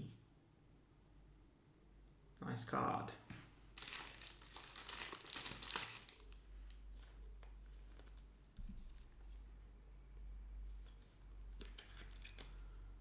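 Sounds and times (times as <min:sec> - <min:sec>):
plastic packaging crinkling: 0:03.8 - 0:07.1, 0:11.5 - 0:12.6.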